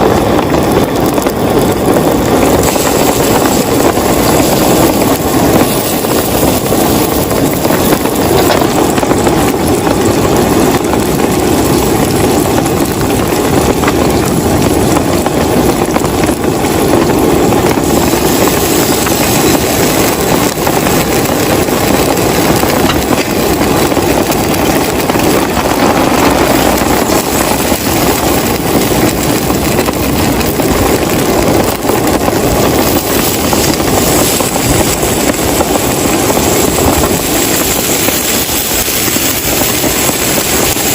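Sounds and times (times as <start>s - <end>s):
heavy rain downpour: 0.0s - 40.9s.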